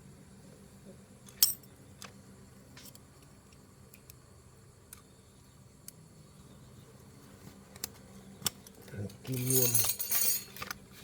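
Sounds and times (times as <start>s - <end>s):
faint low hum: 0.0s - 11.0s
metal parts clinking: 9.3s - 10.7s.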